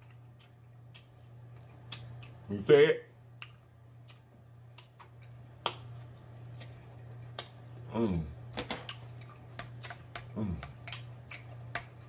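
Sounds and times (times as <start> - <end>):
crunchy chewing: 0.0 - 2.5, 3.3 - 7.9, 8.8 - 12.0
steady low hum: 0.0 - 12.0
person humming mmm: 10.3 - 10.8.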